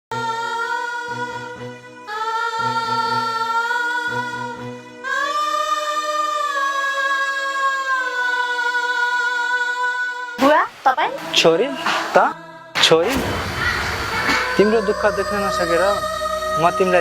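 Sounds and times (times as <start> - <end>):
low pulsing accompaniment: 12.8 - 17.0
person singing long notes: 14.3 - 17.0.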